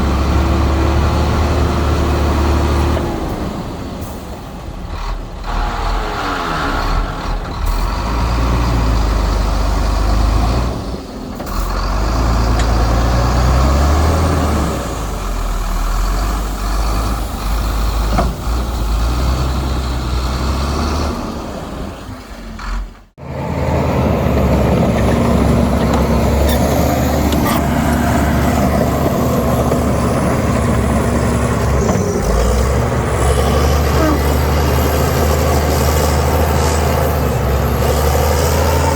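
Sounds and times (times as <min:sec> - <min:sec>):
diesel machinery engine running: 0:00.0 - 0:38.9.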